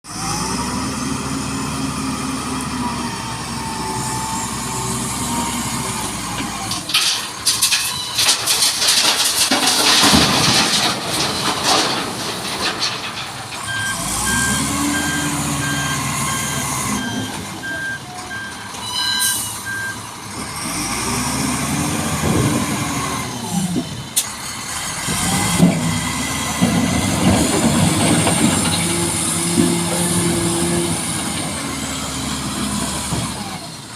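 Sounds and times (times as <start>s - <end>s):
heavy diesel engines revving: 0.1s - 33.9s
reversing beeper: 13.6s - 20.0s.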